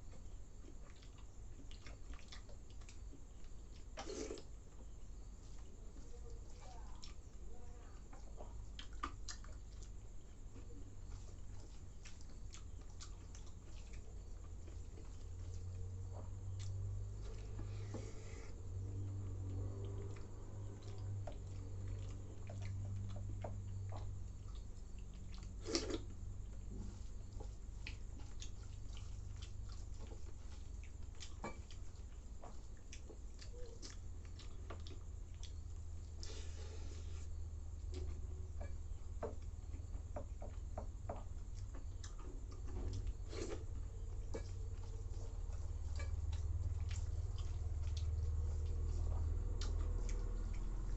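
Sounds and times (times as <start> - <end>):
wet chewing: 0.0 - 50.9
low hum: 9.7 - 40.6.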